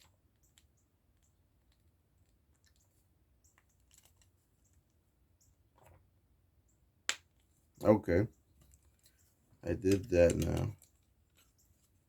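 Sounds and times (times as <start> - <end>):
clicks of plastic parts: 9.8 - 11.0.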